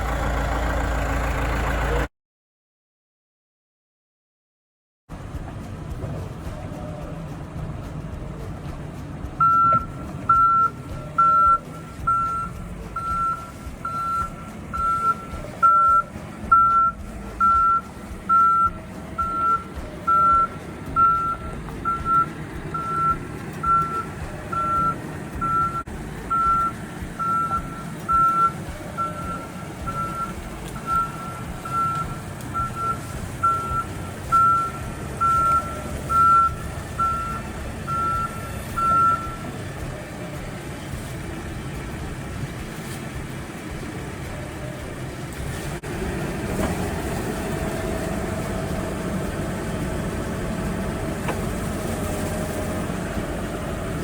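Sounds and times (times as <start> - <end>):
diesel engine running: 0.0 - 2.1, 5.1 - 54.0
backup alarm beeping: 9.4 - 39.5.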